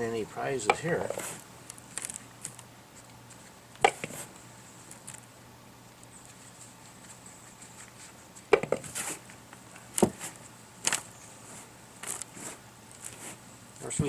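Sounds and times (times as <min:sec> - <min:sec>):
soil rustling: 0:00.3 - 0:14.0.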